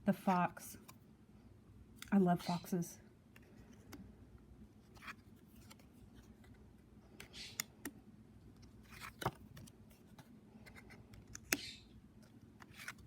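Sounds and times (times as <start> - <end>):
cards sliding on cards: 4.8 - 8.0, 8.8 - 13.0.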